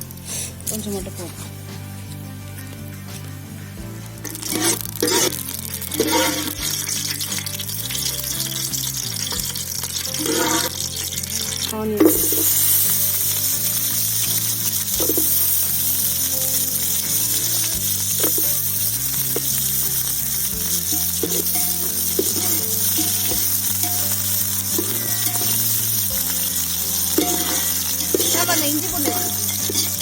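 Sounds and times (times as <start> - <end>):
quiet background music: 0.0 - 30.0
onions sizzling in oil: 4.2 - 30.0
spoon scraping pan: 4.3 - 7.0, 9.2 - 30.0.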